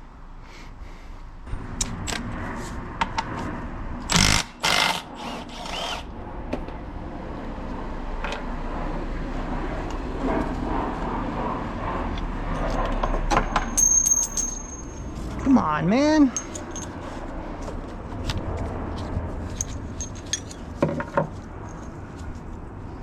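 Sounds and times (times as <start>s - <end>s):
metal tools clinking: 13.0s - 17.0s, 19.5s - 20.8s, 21.6s - 22.0s.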